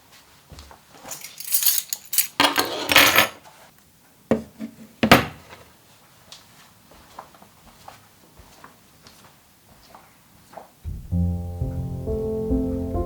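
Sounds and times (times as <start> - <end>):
rustling and scraping: 1.0 - 3.7.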